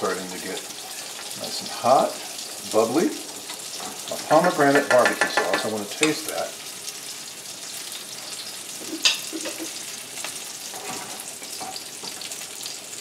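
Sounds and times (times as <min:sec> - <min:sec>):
fish sizzling in a frying pan: 0:00.0 - 0:13.0
spoon clinking against saucepan: 0:08.9 - 0:09.8.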